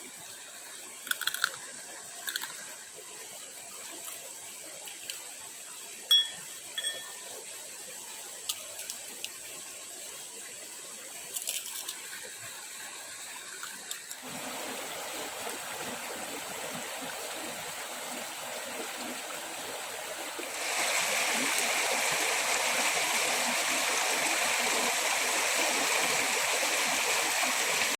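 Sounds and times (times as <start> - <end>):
stream water rushing: 8.6 - 27.9.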